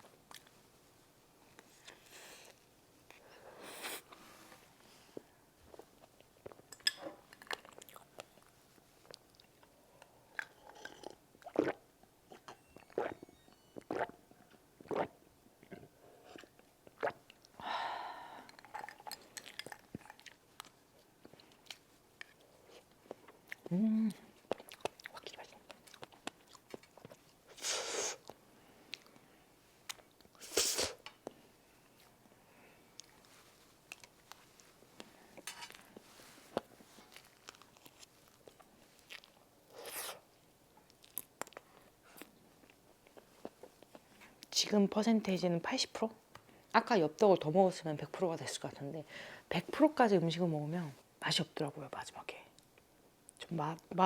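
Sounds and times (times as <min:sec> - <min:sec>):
person chewing: 0:07.4 - 0:09.7, 0:24.4 - 0:29.1, 0:33.9 - 0:34.7, 0:36.6 - 0:40.2
close chewing of cake: 0:07.4 - 0:09.8, 0:18.6 - 0:27.4, 0:36.6 - 0:39.4
wet mouth clicks: 0:11.4 - 0:13.1, 0:13.8 - 0:14.1.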